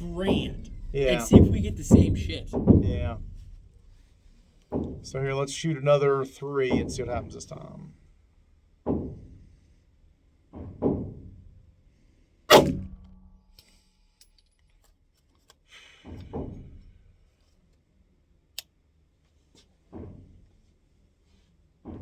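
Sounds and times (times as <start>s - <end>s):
pistol shots: 12.5s - 13.1s.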